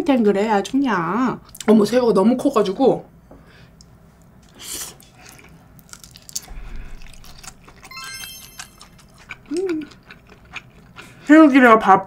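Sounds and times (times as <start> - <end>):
person chewing: 4.4 - 11.3
wet mouth sounds: 6.4 - 11.0.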